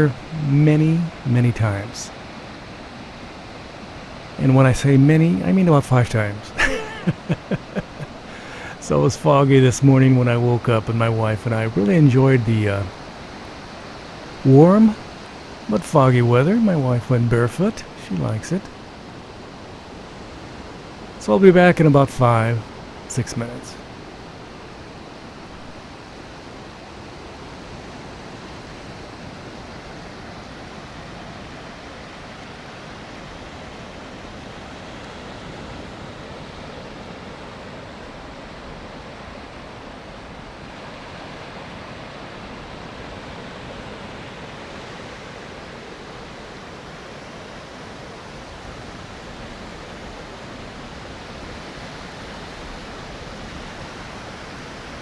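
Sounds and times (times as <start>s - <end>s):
surf washing onto beach: 0.0s - 26.0s.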